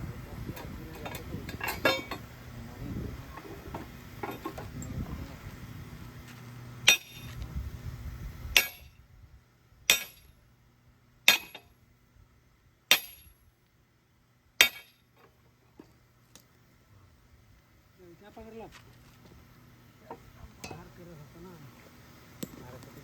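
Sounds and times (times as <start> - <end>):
low rumbling noise: 0.0 - 9.9.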